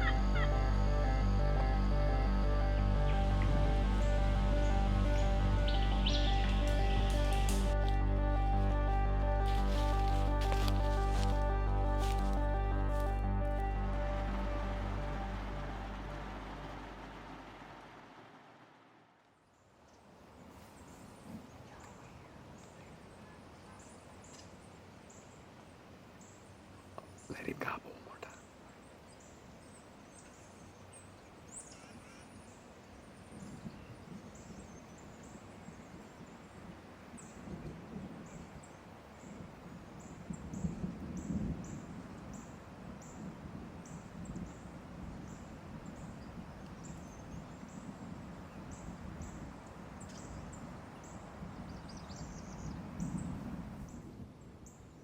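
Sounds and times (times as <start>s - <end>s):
turkey gobbling: 0.0s - 0.7s.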